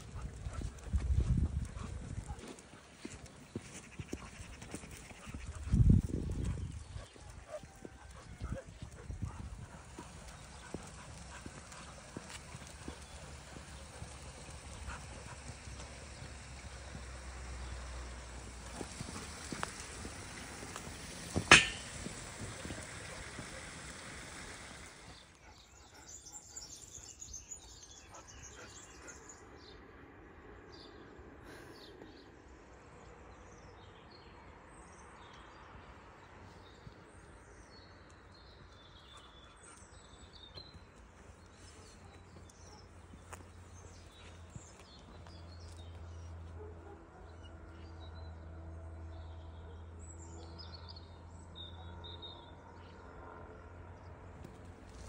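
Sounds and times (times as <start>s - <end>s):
steady outdoor noise: 0.0s - 55.0s
sharp loud knock: 21.5s - 22.0s.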